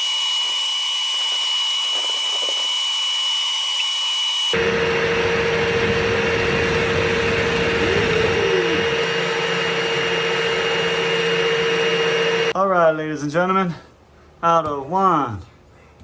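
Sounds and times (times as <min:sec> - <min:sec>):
drill spinning rotary brush: 0:00.0 - 0:12.6
vacuum whirring: 0:00.0 - 0:12.6.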